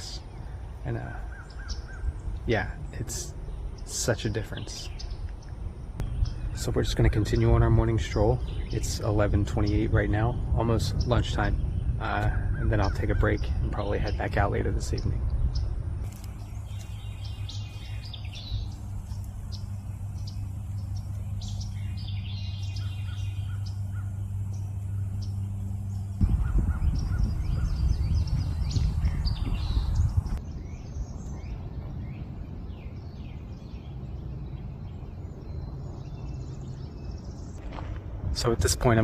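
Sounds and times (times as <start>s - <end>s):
wild birds chirping and calling: 0.0s - 37.6s
low outdoor rumble: 0.0s - 39.0s
rush of low noise: 15.1s - 30.5s.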